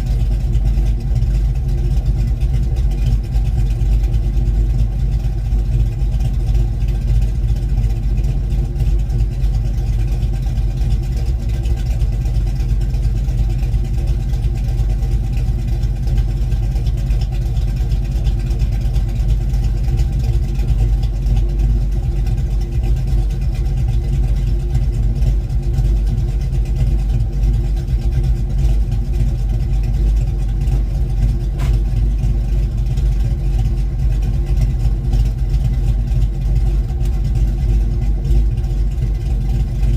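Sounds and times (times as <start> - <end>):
loud car engine idling: 0.0 - 39.9.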